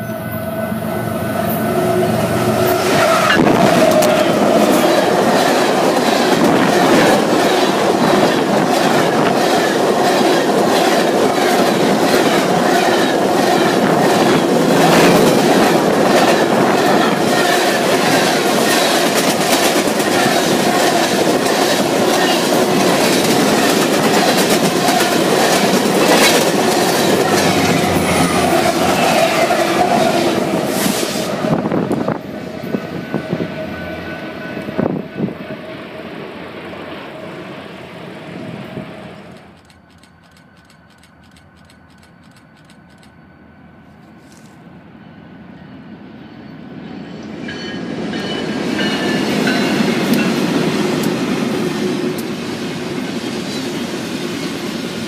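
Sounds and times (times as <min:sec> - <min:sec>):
loud rolling rush: 0:01.8 - 0:33.4.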